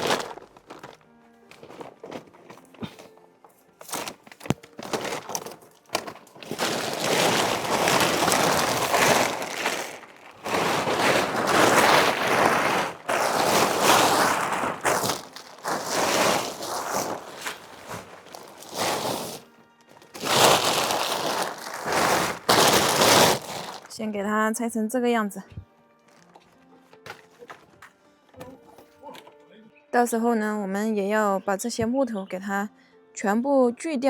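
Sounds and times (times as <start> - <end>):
plastic tarp crinkling: 0.0 - 3.2, 3.8 - 24.0.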